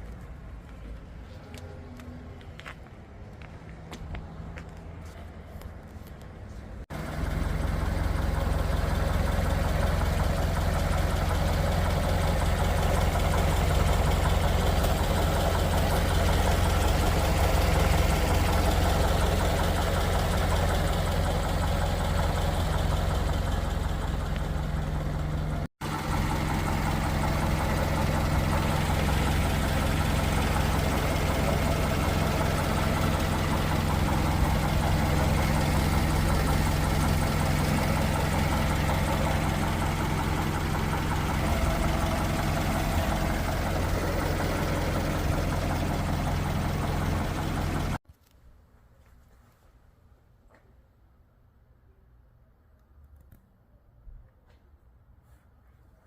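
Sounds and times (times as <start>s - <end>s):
car engine idling: 5.9s - 48.0s.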